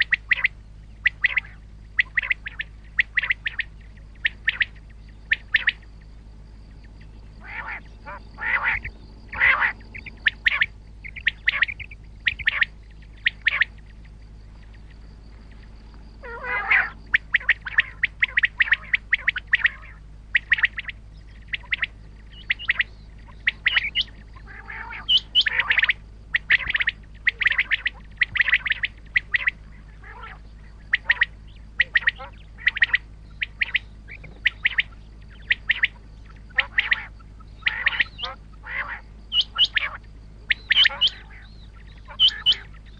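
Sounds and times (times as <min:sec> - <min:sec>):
electrical hum: 0:00.0 - 0:42.9
quail calling: 0:00.0 - 0:42.9.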